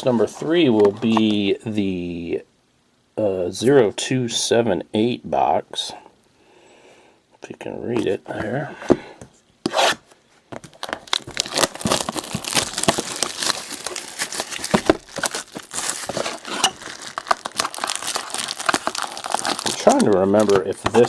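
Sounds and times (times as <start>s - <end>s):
plastic wrap crinkling: 10.6s - 21.0s
plastic wrap ripping: 10.6s - 21.0s.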